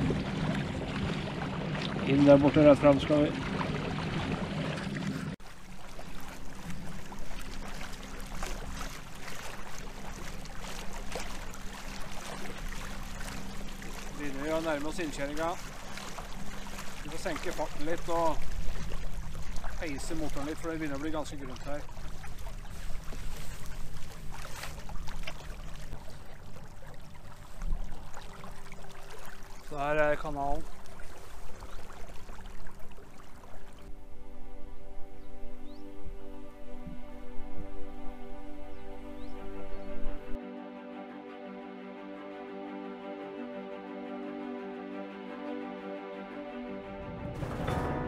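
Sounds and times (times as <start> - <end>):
water splashing along kayak hull: 0.0 - 34.0, 47.0 - 48.0.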